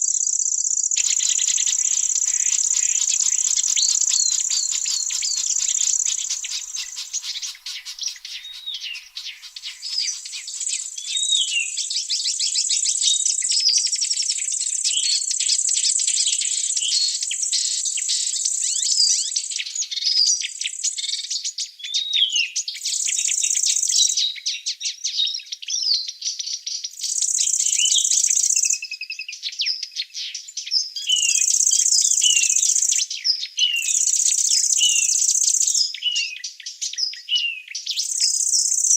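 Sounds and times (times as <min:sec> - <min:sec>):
birds chirping: 0:00.8 - 0:11.8, 0:33.6 - 0:36.2
insect buzz: 0:00.9 - 0:11.2.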